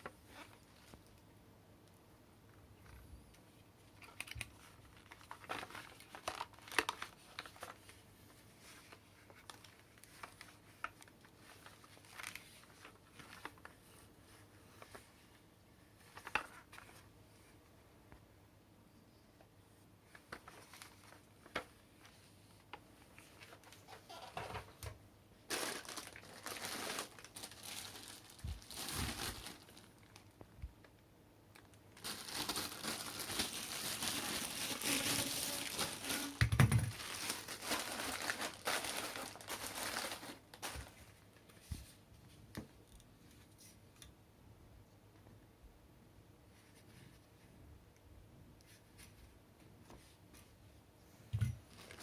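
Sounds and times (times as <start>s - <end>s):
plastic packaging crinkling: 3.9s - 8.0s, 8.6s - 13.8s, 20.1s - 21.8s, 25.5s - 30.5s, 31.5s - 41.1s, 51.6s - 52.0s.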